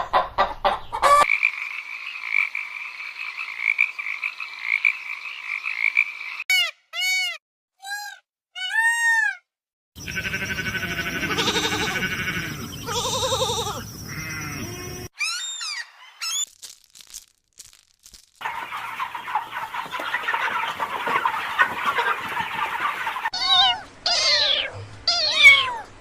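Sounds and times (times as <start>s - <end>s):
loud animal bleating: 10.0s - 15.1s.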